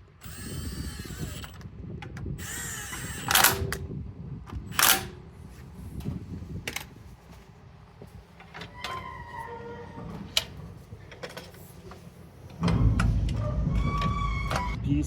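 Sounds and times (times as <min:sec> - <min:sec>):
cordless drill whirring: 0:00.0 - 0:01.7, 0:02.3 - 0:03.8.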